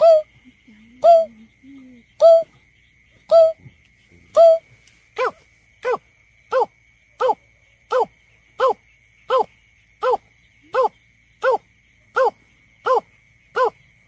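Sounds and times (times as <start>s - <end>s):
bird hooting call: 0.0s - 0.3s, 1.0s - 1.4s, 2.2s - 2.5s, 3.3s - 3.6s, 4.4s - 4.6s.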